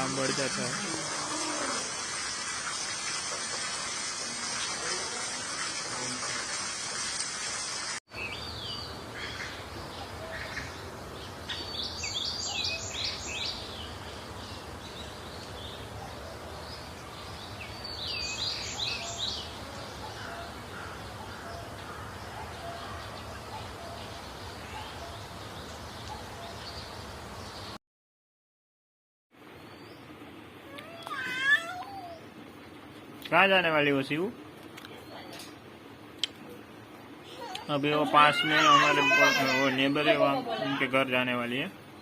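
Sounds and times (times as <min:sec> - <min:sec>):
water hissing: 0:00.0 - 0:08.0
birds chirping: 0:08.1 - 0:27.8, 0:33.4 - 0:42.0.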